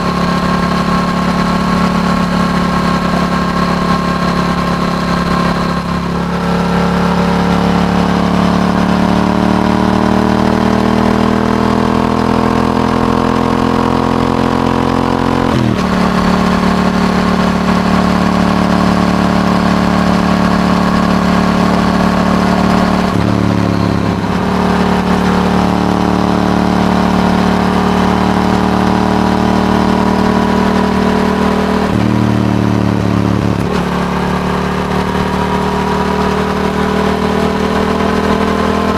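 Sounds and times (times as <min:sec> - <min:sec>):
motorcycle engine under way: 0:00.0 - 0:38.9.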